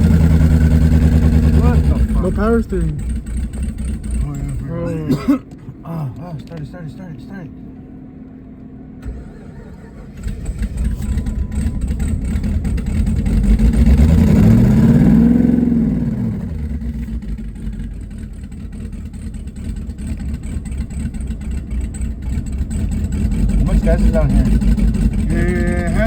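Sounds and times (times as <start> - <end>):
car engine starting and revving: 0.0 - 6.9, 9.0 - 26.0
engine lumpy idle: 0.0 - 26.0
engine starter click: 9.0 - 12.0.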